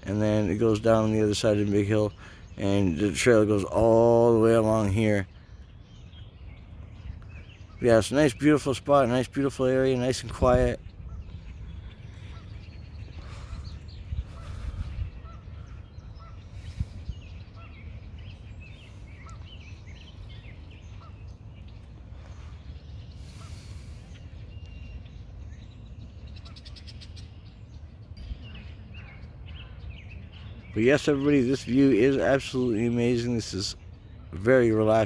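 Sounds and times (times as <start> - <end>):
small birds chirping: 0.0 - 35.0
wind on microphone: 10.1 - 21.2.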